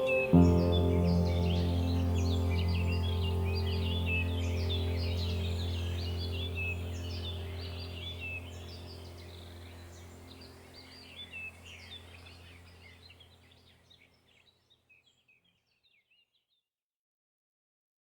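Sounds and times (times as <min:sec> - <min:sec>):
steady low drone: 0:00.0 - 0:13.3
birds chirping: 0:00.0 - 0:16.2.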